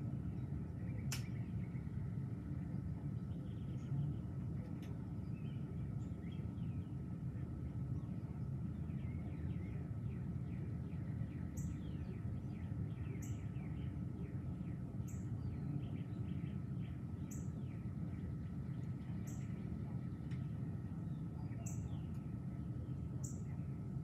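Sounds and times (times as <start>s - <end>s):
songbirds chirping: 0.0s - 24.0s
steady low rumble: 0.0s - 24.0s.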